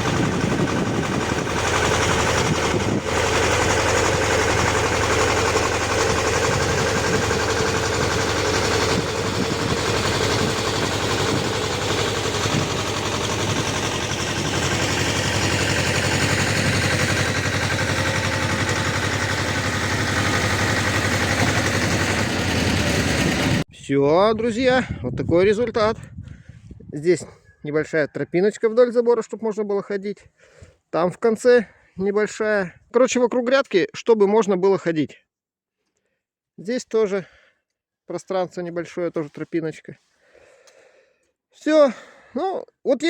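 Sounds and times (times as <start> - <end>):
tractor engine with rotary tiller: 0.0 - 23.7.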